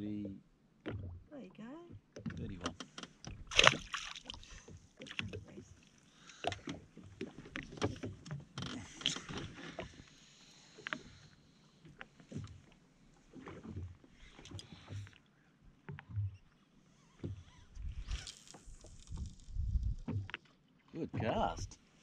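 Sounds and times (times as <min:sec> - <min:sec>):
water sounds: 0:00.8 - 0:22.0.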